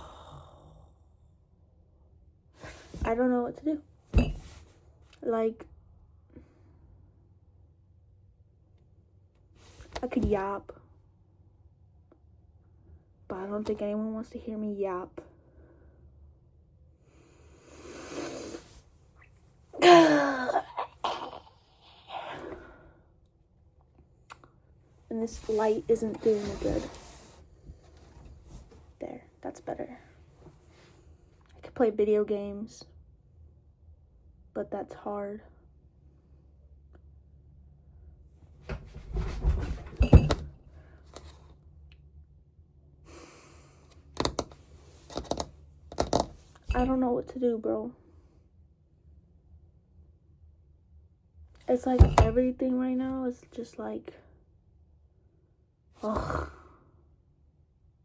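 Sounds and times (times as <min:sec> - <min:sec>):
knocks and thumps: 0:04.2 - 0:04.6, 0:38.7 - 0:40.6, 0:44.2 - 0:47.0, 0:52.0 - 0:52.5
woman groaning: 0:19.8 - 0:22.6
soft rustle: 0:25.1 - 0:29.0.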